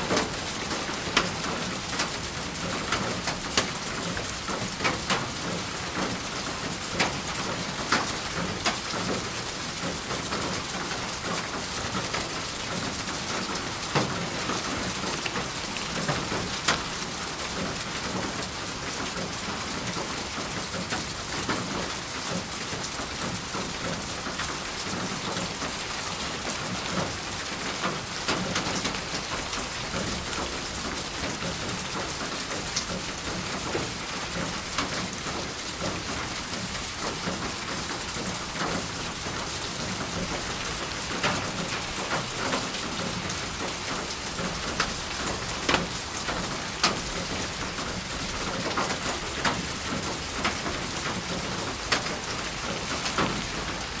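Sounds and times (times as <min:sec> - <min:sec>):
steady rain falling: 0:00.0 - 0:54.0
raindrop taps: 0:13.9 - 0:17.0, 0:41.2 - 0:53.5.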